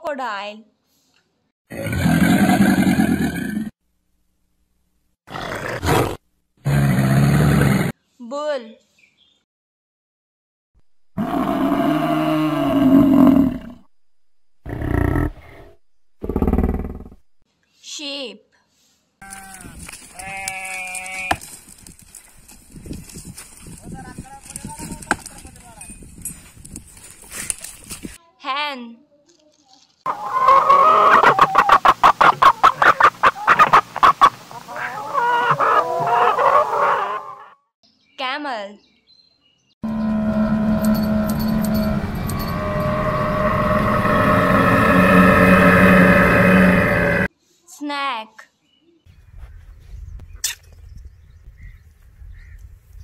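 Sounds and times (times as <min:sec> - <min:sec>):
bull bellowing: 0:11.2 - 0:13.9, 0:39.8 - 0:47.3
chicken clucking: 0:30.1 - 0:37.5.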